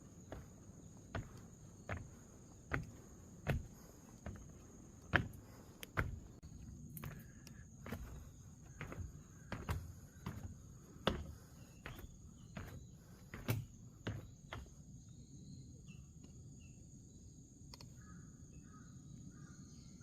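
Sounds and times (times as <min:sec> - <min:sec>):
footsteps on a path: 0:00.0 - 0:14.8
insects droning: 0:00.0 - 0:20.0.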